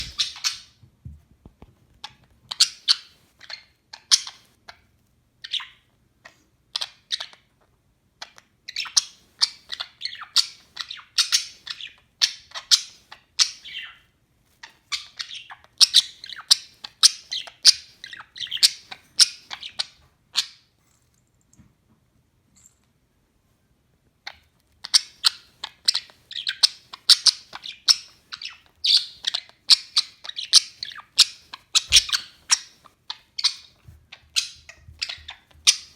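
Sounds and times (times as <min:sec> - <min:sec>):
budgerigar chirping: 0:00.0 - 0:00.8, 0:02.5 - 0:04.8, 0:08.2 - 0:14.0, 0:14.6 - 0:20.7, 0:24.3 - 0:35.9.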